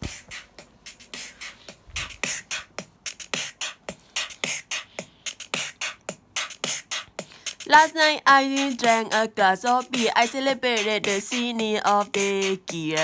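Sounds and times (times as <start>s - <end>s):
beatbox percussion pattern: 0.0s - 13.0s.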